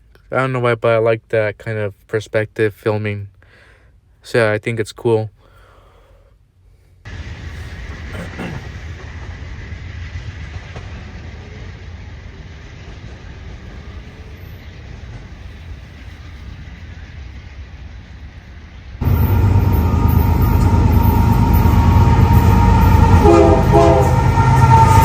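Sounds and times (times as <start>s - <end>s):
train rumbling over rails: 7.1s - 25.0s.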